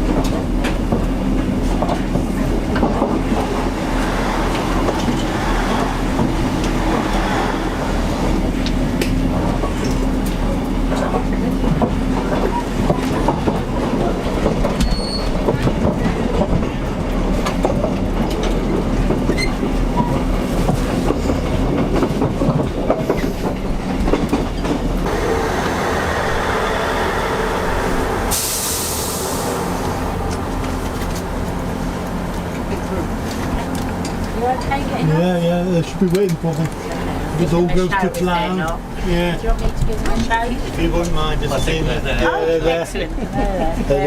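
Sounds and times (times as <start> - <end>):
train rumbling: 0.0 - 44.0
high hiss: 25.1 - 30.4.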